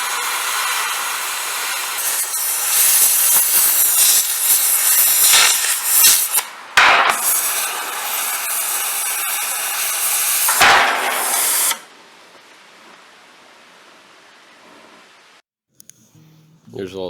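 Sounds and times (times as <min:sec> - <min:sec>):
power tool hissing on steel: 0:00.0 - 0:11.9.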